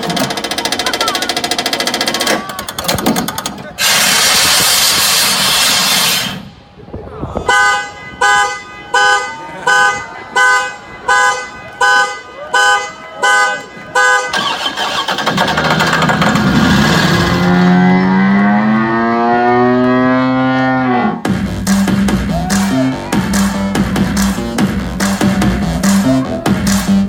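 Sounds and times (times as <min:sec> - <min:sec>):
short horn-like beeps: 0:07.5 - 0:14.7.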